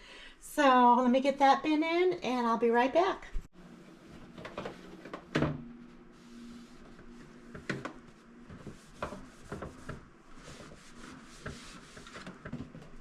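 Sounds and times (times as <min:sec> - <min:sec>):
scraping and rubbing: 0:05.8 - 0:13.0.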